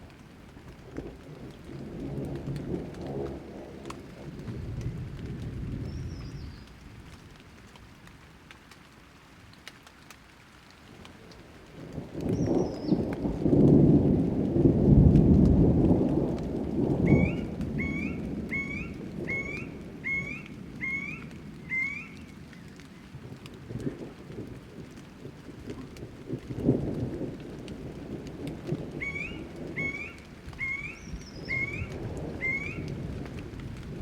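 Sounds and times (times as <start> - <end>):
thunder rumbling: 0.0 - 7.4, 11.7 - 34.0
steady rain: 0.0 - 34.0
bird call: 17.1 - 22.8, 29.0 - 32.9.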